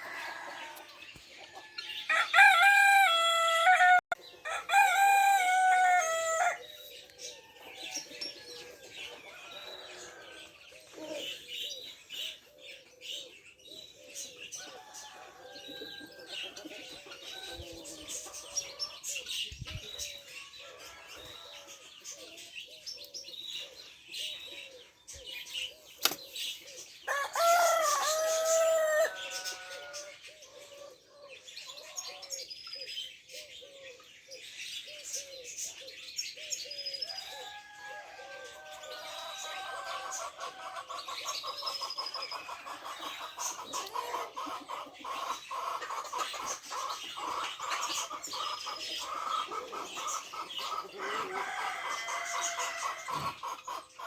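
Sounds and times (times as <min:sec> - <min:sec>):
pigeons cooing: 0:00.0 - 0:01.6, 0:05.7 - 0:54.0
small birds chirping: 0:00.0 - 0:54.0
rooster crowing: 0:02.0 - 0:06.6, 0:27.1 - 0:30.1, 0:37.2 - 0:40.1, 0:51.0 - 0:53.2.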